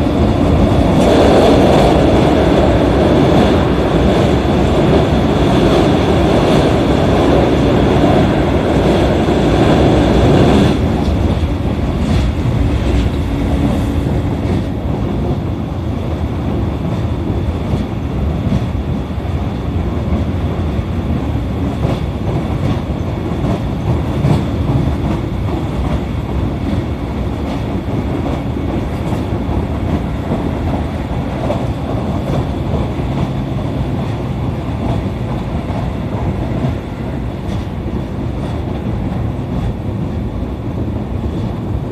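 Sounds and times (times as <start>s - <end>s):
train wheels rumbling on rail: 0.0s - 41.9s
rail-joint clicks: 3.2s - 15.4s, 21.1s - 40.2s.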